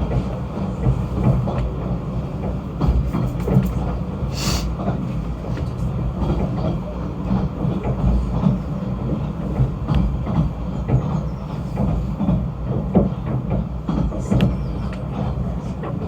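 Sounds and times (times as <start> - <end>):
train rumbling: 0.0 - 16.0
short hiss: 4.4 - 4.7.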